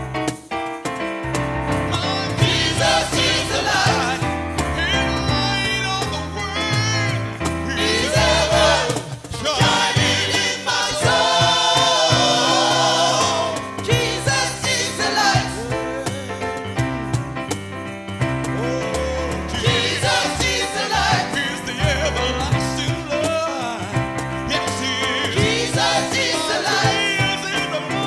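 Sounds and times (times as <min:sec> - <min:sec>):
instrumental accompaniment: 0:00.0 - 0:28.0
choir singing: 0:02.0 - 0:04.6, 0:07.6 - 0:16.0, 0:19.5 - 0:21.9, 0:25.2 - 0:28.0.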